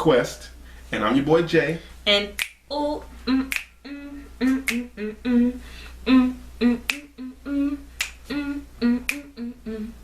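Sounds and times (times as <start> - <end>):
finger snaps: 2.4 - 2.6, 3.4 - 3.8, 4.4 - 4.9, 6.8 - 7.1, 8.0 - 8.4, 9.0 - 9.4.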